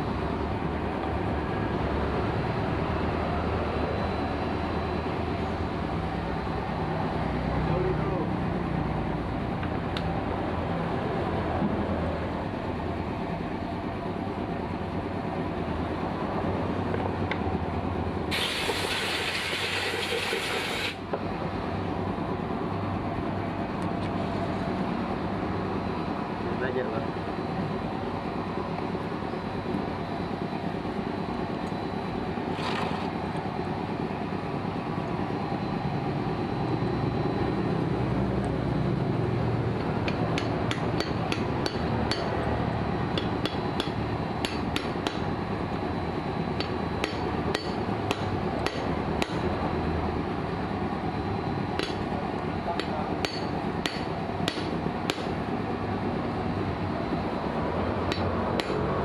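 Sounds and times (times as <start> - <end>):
steady background noise: 0.0 - 59.0
hammer tapping on metal: 40.0 - 42.3, 43.2 - 45.2, 46.6 - 49.5, 51.8 - 52.0, 52.8 - 55.4, 58.1 - 58.8.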